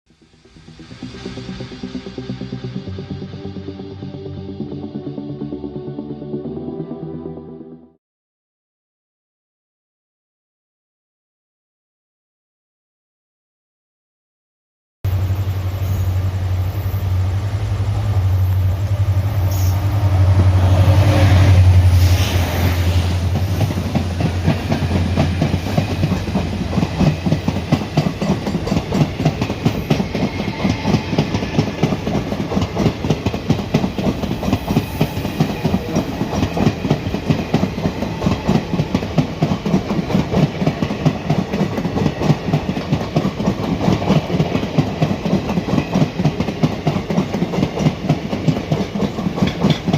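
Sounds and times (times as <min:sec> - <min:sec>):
low drone: 0:00.1 - 0:08.0
train wheels clickety-clack: 0:18.5 - 0:49.9.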